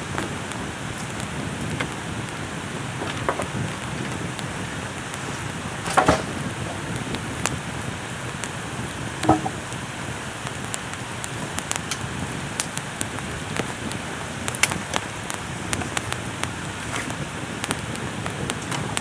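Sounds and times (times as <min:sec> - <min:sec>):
heavy raindrops tapping: 0:00.0 - 0:19.0
steady rain falling: 0:00.0 - 0:19.0
loud knock: 0:09.2 - 0:09.6.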